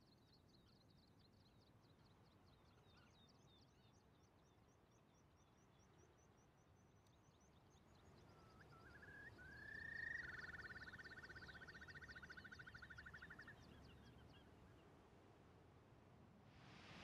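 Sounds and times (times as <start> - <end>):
bird rising call and trill: 8.8 - 13.6
thin high bird calls: 9.3 - 13.6.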